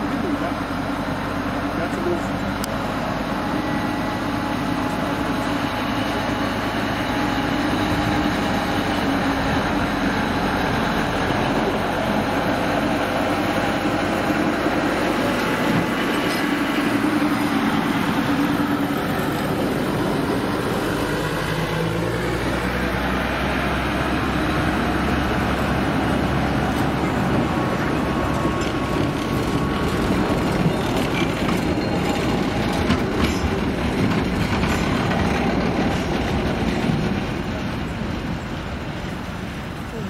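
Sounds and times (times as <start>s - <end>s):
small train mechanical rumble: 0.0s - 40.0s.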